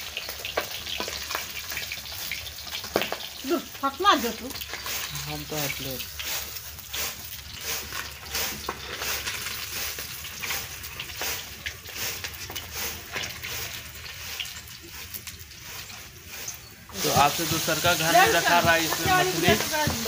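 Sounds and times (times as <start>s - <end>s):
fish sizzling in hot oil: 0.0s - 20.0s
oil crackling and popping: 0.0s - 20.0s.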